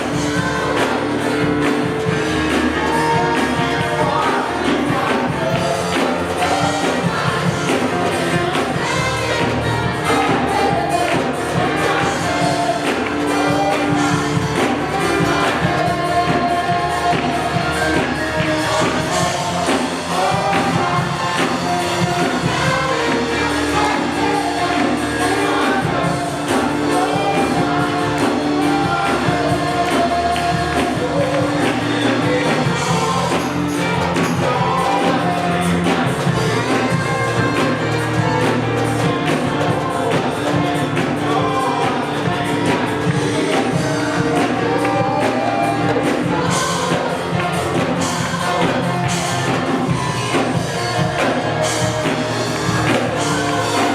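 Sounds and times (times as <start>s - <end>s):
band with drums playing: 0.0s - 53.9s
singers singing: 0.0s - 53.9s.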